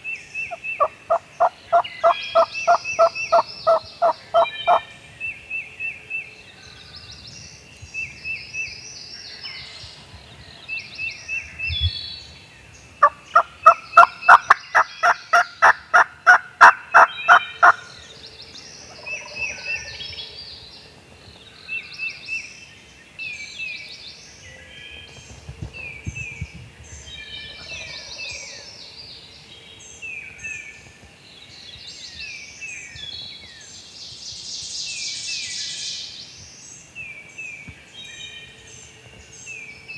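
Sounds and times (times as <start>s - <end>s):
songbirds chirping: 0.0s - 39.9s
turkey gobbling: 0.8s - 4.8s, 13.0s - 17.8s
turkey yelping: 1.1s - 4.8s, 13.6s - 17.8s.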